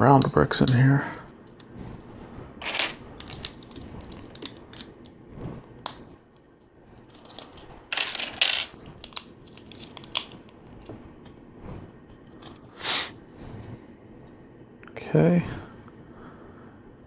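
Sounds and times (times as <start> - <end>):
loose plastic pieces rattling: 7.1 - 10.4.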